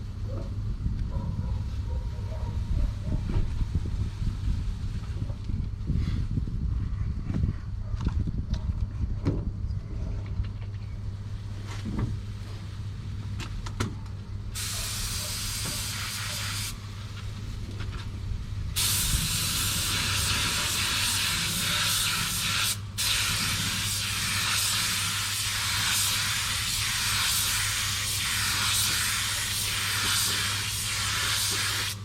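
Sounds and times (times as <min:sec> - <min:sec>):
steady low hum: 0:00.0 - 0:32.0
paint spray gun hissing: 0:14.6 - 0:16.8, 0:18.8 - 0:32.0.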